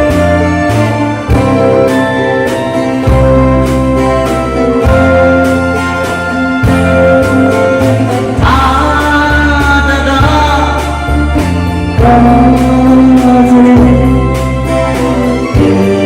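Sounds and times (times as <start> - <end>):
live band playing a slow song: 0.0 - 16.0
person singing: 7.2 - 16.0.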